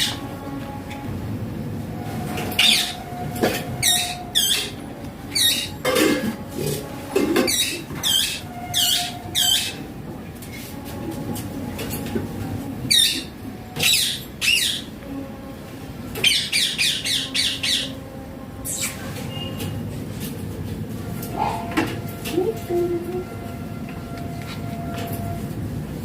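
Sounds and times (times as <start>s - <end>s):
parakeet squawking: 2.6s - 3.0s, 3.8s - 5.8s, 7.4s - 9.8s, 12.9s - 14.9s, 16.2s - 18.0s.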